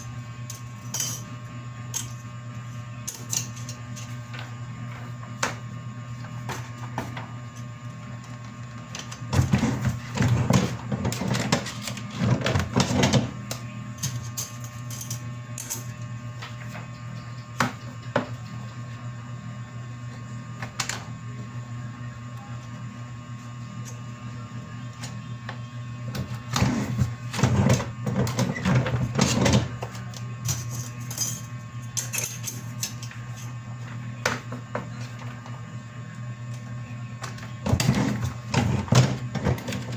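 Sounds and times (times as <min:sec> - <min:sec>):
printing machine humming: 0:20.0 - 0:31.0, 0:33.0 - 0:39.9.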